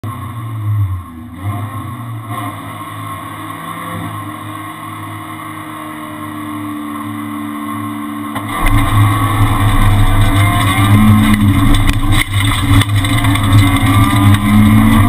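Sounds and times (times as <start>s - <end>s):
car engine idling: 8.3s - 15.0s.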